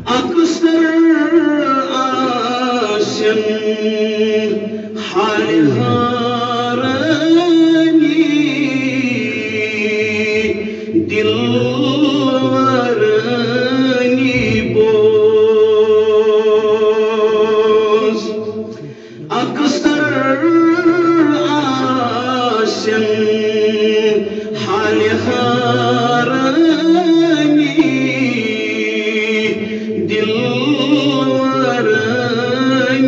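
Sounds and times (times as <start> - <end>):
man chanting: 0.0 - 33.0.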